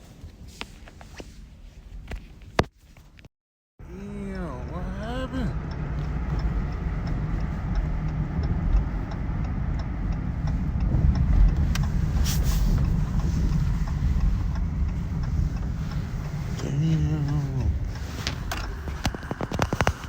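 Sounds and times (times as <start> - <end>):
car engine and road noise: 0.0 - 20.0
faint regular ticking: 4.3 - 20.0
brief hiss: 12.2 - 12.9.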